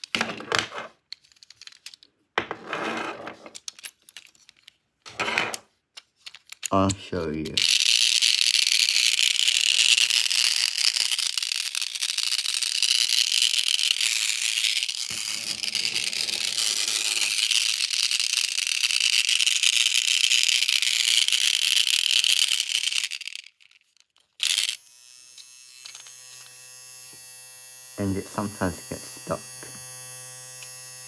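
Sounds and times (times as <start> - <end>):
toy train gearbox rattling: 1.1 - 2.1, 3.5 - 4.8, 6.0 - 24.8.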